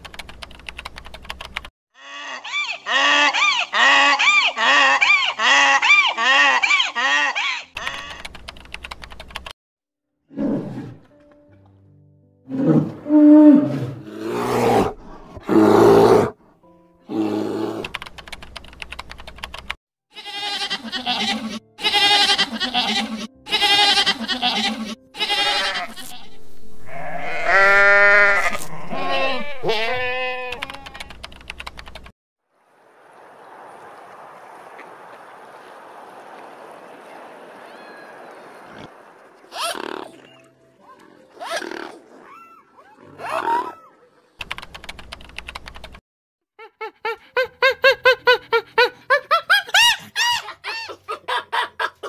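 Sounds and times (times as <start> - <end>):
bear growling: 12.5 - 16.4
goats bleating: 20.2 - 30.9.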